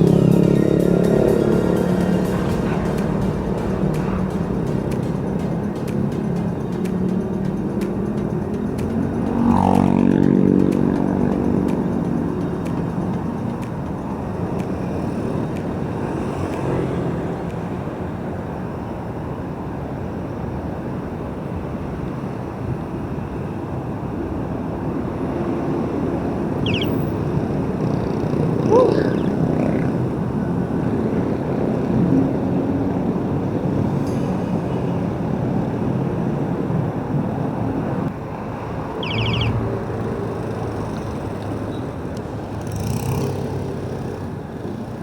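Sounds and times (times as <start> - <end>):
heavy road traffic rumble: 0.0 - 45.0
rising squeaks: 26.6 - 27.3, 39.0 - 39.7.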